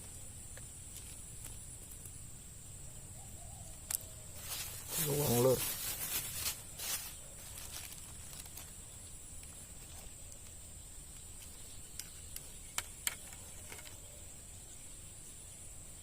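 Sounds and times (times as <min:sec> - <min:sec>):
sharp clicks: 0:10.3 - 0:14.0.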